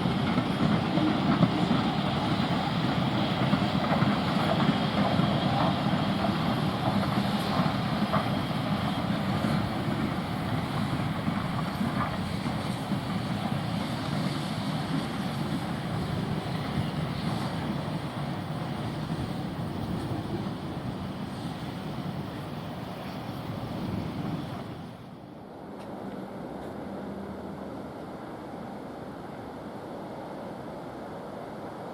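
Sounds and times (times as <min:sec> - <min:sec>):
train running: 0:00.0 - 0:31.9.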